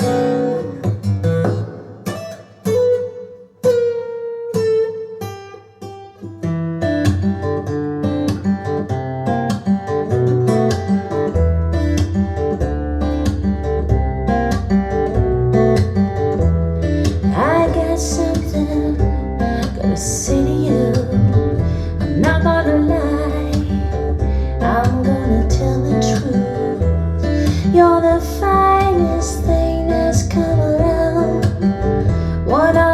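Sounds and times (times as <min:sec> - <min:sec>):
acoustic guitar picking: 0:00.0 - 0:32.9
low bass line: 0:16.4 - 0:32.9.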